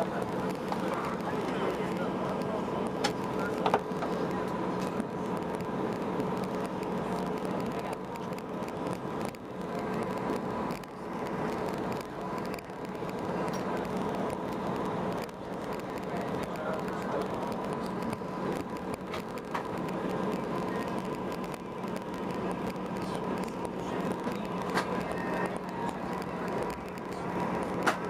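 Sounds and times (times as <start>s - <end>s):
jet airliner engines humming: 0.0s - 28.0s.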